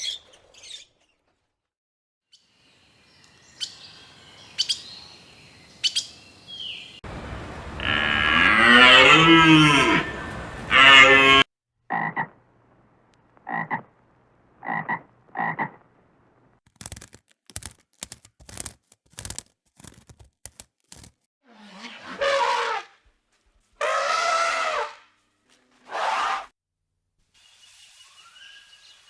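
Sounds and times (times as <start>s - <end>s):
frogs croaking: 3.5s - 12.4s, 13.4s - 14.0s, 14.6s - 15.8s
loud pitch-bending animal call: 7.8s - 11.4s.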